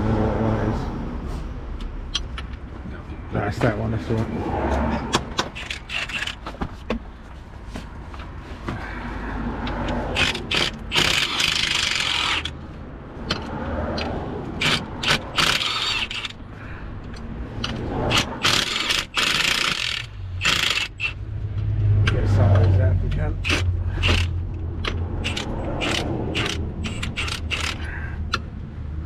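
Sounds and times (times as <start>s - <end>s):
socket ratchet clicking: 5.1s - 6.4s, 9.7s - 12.6s, 13.2s - 16.4s, 17.1s - 22.2s, 23.4s - 28.5s
metal clicks and knocks: 17.0s - 28.5s.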